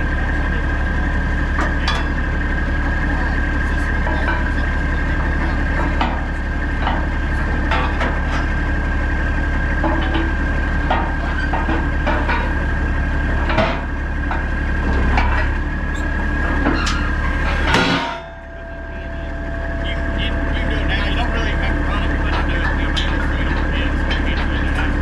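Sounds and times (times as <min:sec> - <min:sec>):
diesel machinery rumbling: 0:00.0 - 0:25.0
clanks and knocks: 0:01.6 - 0:02.3, 0:04.0 - 0:08.8, 0:09.6 - 0:25.0
high whine: 0:13.5 - 0:25.0.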